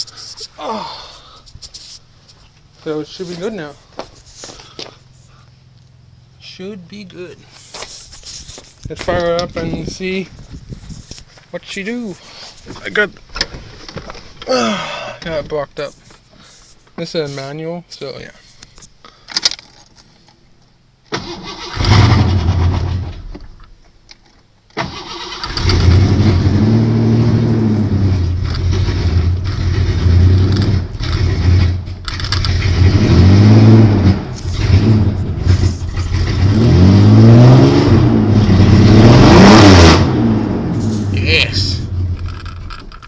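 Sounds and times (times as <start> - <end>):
truck engine starting and revving: 21.1 - 23.5, 24.8 - 43.0.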